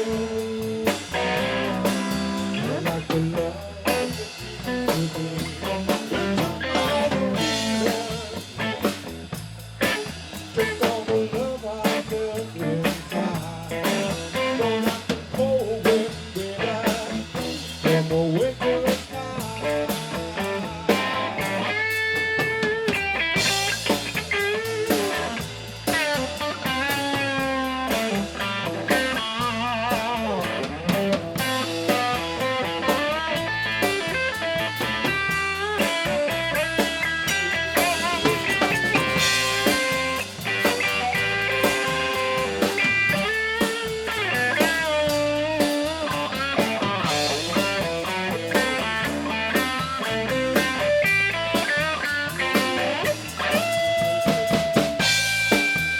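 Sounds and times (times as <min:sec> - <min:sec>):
drums: 0:00.0 - 0:55.9
electric guitar solo: 0:20.5 - 0:55.9.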